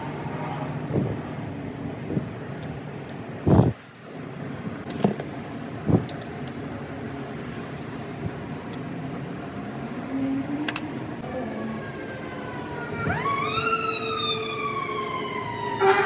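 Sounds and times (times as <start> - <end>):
steady background hum: 0.0 - 16.0
siren wailing: 11.2 - 16.0.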